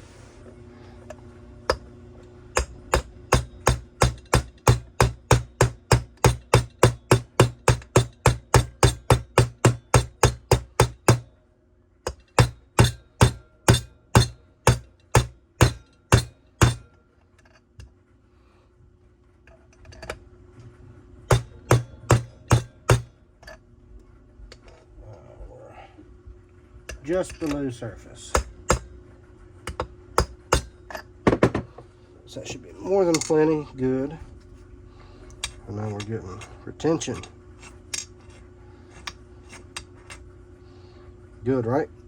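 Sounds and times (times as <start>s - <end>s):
hammer tapping on metal: 2.5s - 11.3s, 12.1s - 16.9s, 21.3s - 23.1s.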